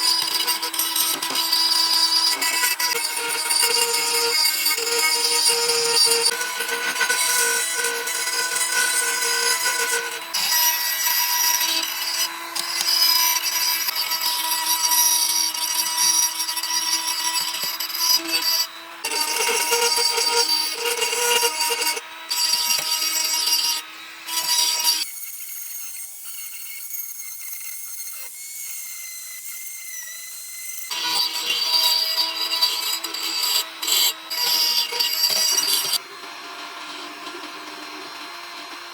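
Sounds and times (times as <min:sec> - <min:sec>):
power tool: 0:00.0 - 0:38.9
wood sawing: 0:00.0 - 0:38.9.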